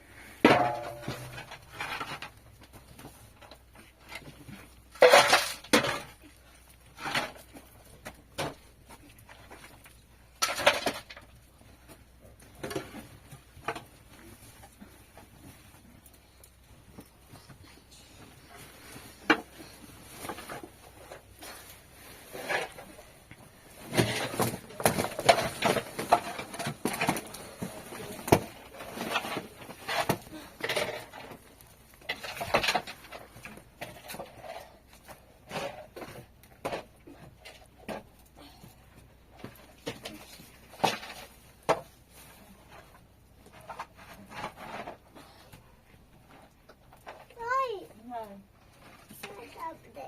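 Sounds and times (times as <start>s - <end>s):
hard objects knocking and clattering: 0.4s - 6.3s, 22.4s - 38.6s.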